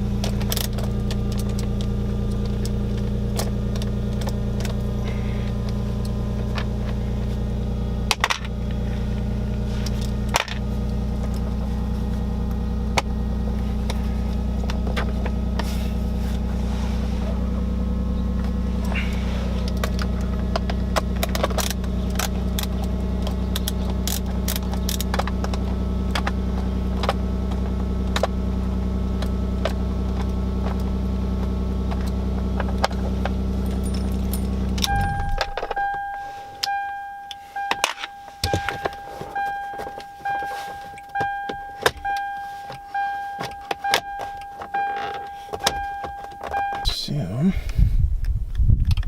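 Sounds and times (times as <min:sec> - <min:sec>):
car engine idling: 0:00.0 - 0:49.0
handling clicks and rattles: 0:00.1 - 0:07.0
car warning chime dinging: 0:33.5 - 0:47.4.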